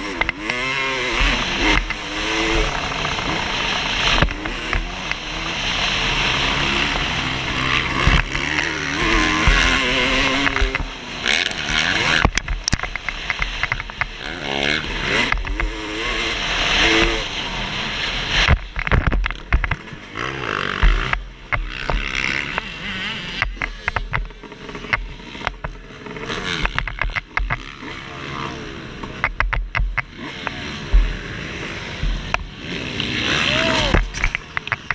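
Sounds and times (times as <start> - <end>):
motorbike engine revving: 0.0 - 34.9
sharp knocks: 26.6 - 27.7, 29.2 - 31.2, 32.0 - 32.6.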